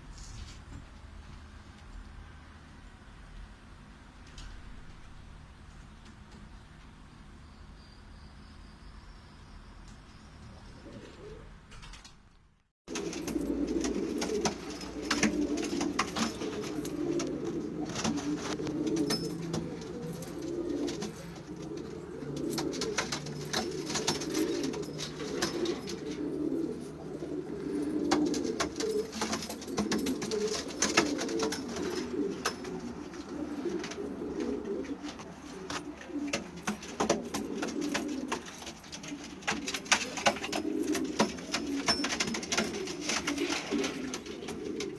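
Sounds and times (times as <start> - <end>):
pigeons cooing: 10.2 - 12.1, 12.9 - 44.9.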